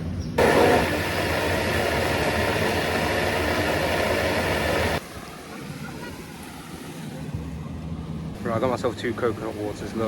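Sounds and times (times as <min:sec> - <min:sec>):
engine running steadily: 0:00.4 - 0:05.9.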